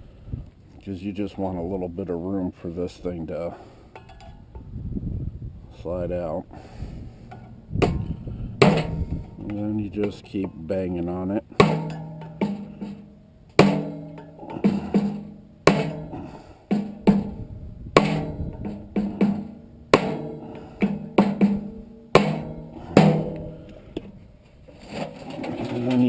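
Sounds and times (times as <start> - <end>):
hammer striking metal: 7.8 - 9.6, 11.6 - 13.0, 13.6 - 17.4, 18.0 - 23.6.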